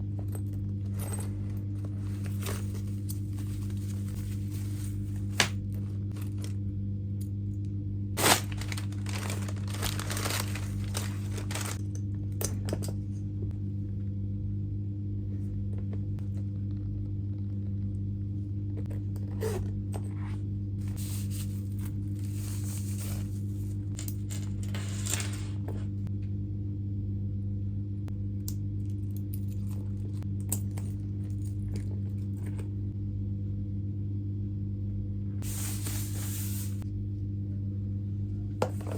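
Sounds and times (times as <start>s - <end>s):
steady low hum: 0.0s - 38.9s
paper tearing and crinkling: 8.2s - 11.8s.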